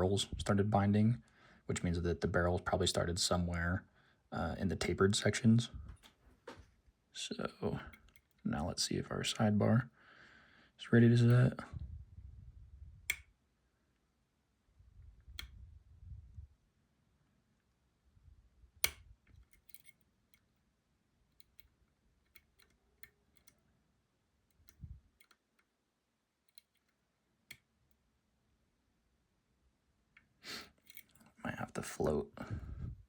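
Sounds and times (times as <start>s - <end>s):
lock picks clicking: 7.9s - 8.4s, 18.8s - 20.6s, 21.3s - 23.7s, 24.5s - 25.7s, 26.4s - 27.0s, 30.8s - 31.2s.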